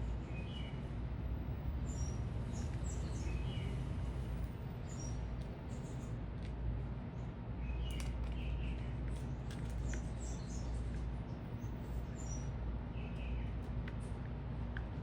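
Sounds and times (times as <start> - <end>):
low city rumble: 0.0 - 15.0
small birds chirping: 1.8 - 6.2, 7.1 - 14.2.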